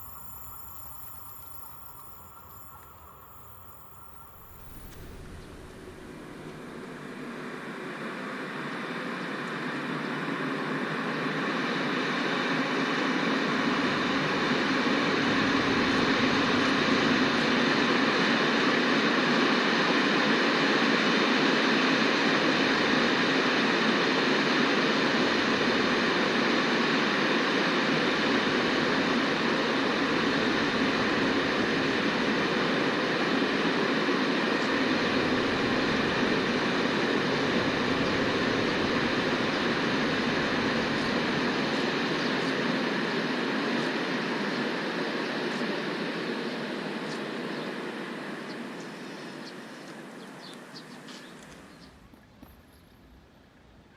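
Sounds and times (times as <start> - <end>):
train wheels on rails: 0.0 - 7.6.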